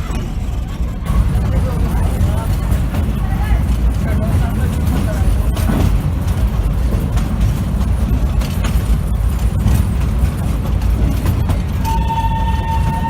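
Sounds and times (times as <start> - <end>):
train rumbling: 0.0 - 13.0
high train horn tone: 11.8 - 13.0.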